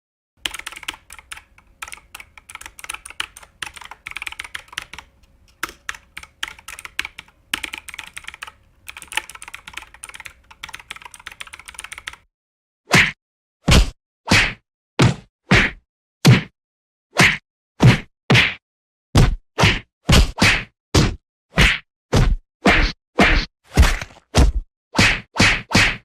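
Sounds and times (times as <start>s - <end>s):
rapid typing on keyboard: 0.4s - 12.2s.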